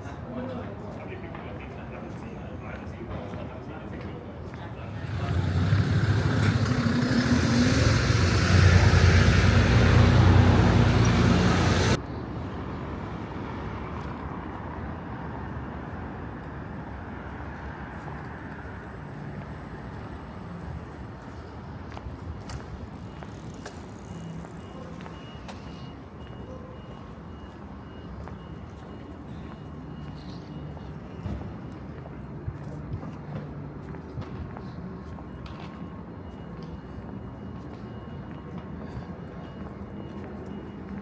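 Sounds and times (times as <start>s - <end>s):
outdoor city ambience: 0.0s - 41.0s
road traffic: 3.4s - 41.0s
motor vehicle running close by: 4.8s - 12.0s.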